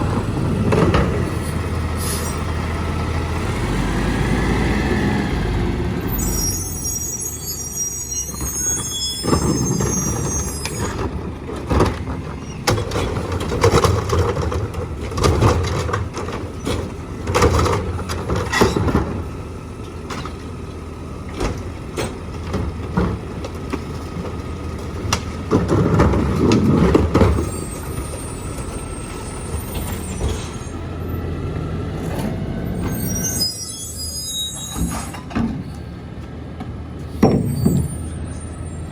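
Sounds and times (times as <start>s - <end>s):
diesel engine running: 0.0s - 7.4s
air brakes hissing: 6.1s - 10.8s, 32.8s - 35.9s.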